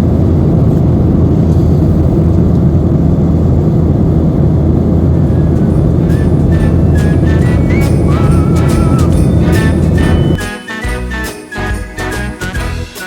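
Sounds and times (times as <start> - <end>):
jet engine roar in cabin: 0.0 - 10.4.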